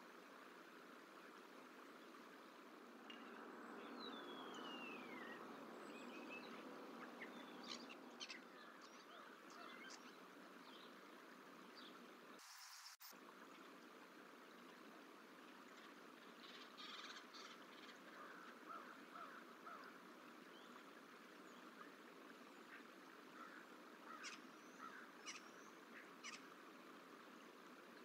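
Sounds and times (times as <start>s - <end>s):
distant bird calls: 3.1s - 11.0s, 15.8s - 26.6s.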